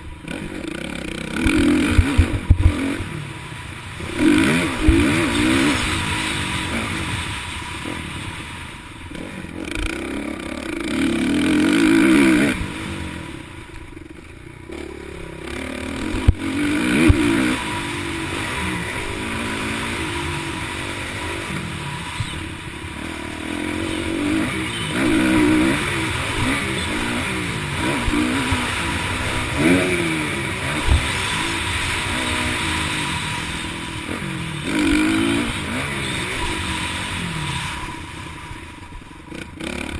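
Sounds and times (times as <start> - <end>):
motocross bike engines revving: 0.0 - 39.9.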